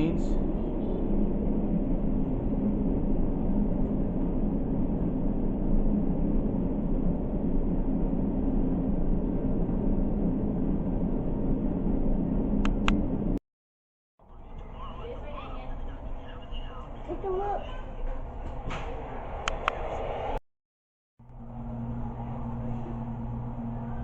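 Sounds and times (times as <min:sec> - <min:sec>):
droning hum: 0:00.0 - 0:13.4, 0:21.2 - 0:24.0
low rumble: 0:00.0 - 0:13.4, 0:17.8 - 0:20.4, 0:21.2 - 0:24.0.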